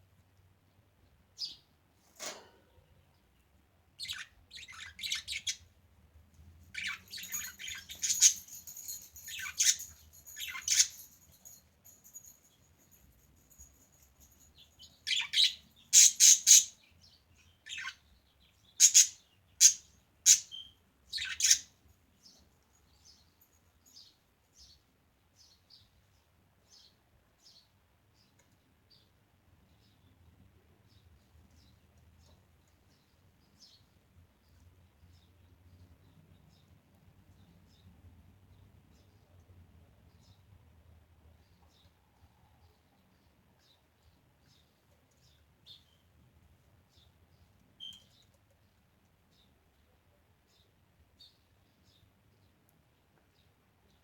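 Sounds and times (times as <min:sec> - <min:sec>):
budgerigars chirping: 0:16.0 - 0:16.8, 0:18.8 - 0:21.7.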